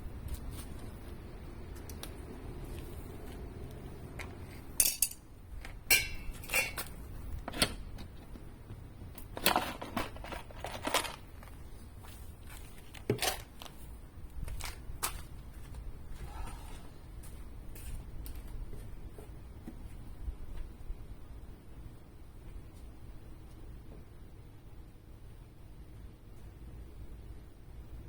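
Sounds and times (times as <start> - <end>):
low steady background noise: 0.0 - 28.0
metal objects clinking: 4.8 - 5.2, 5.9 - 6.9.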